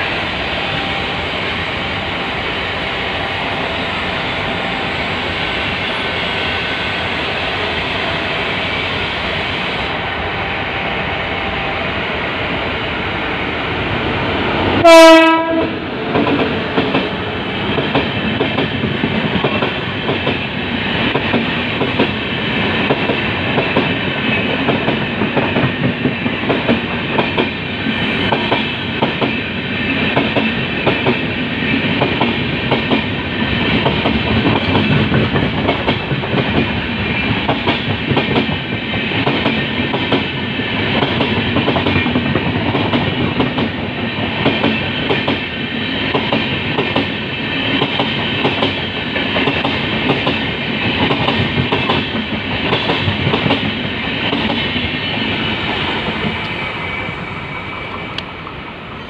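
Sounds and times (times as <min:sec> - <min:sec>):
train wheels rumbling on rail: 0:00.0 - 0:59.0
clickety-clack over rail joints: 0:14.8 - 0:55.3.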